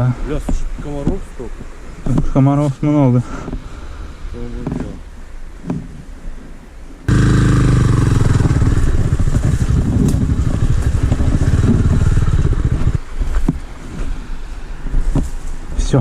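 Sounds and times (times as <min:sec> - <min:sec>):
motorcycle engine running: 0:07.1 - 0:13.0.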